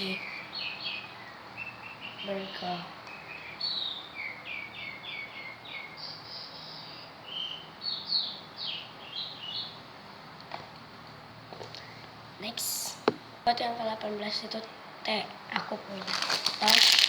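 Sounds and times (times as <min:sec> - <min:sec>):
bird chirping: 0:00.0 - 0:09.9
faint background hiss: 0:00.0 - 0:17.0.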